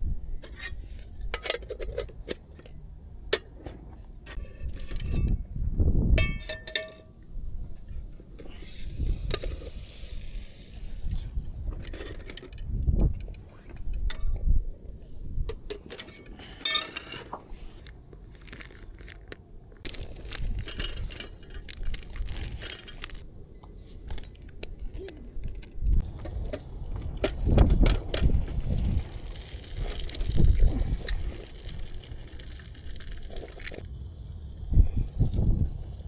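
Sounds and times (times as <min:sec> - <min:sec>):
gusty low rumble: 0:04.4 - 0:06.4, 0:07.3 - 0:15.7, 0:25.4 - 0:36.0.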